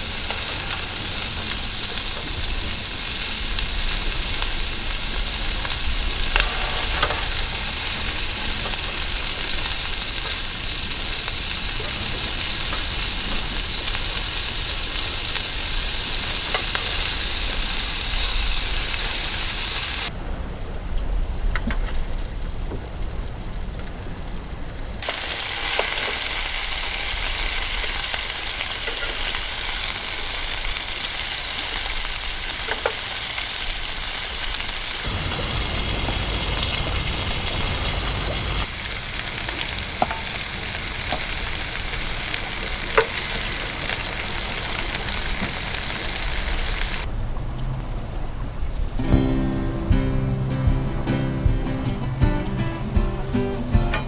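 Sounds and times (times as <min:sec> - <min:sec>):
food sizzling in a frying pan: 0:00.0 - 0:20.1, 0:25.0 - 0:47.1.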